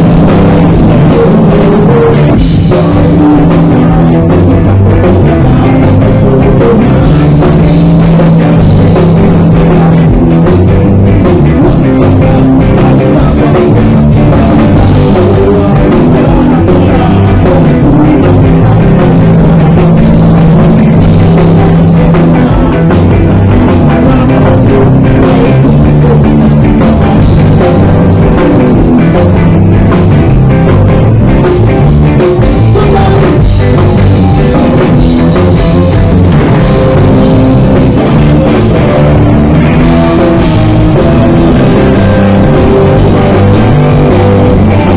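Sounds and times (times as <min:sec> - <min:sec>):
live rock band playing: 0:00.0 - 0:44.9.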